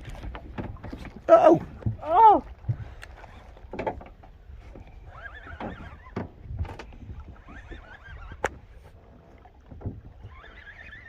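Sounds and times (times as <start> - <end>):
knocks on boat: 3.7 - 4.2
fishing reel drag whining: 5.0 - 6.2, 7.3 - 8.6, 10.2 - 11.0.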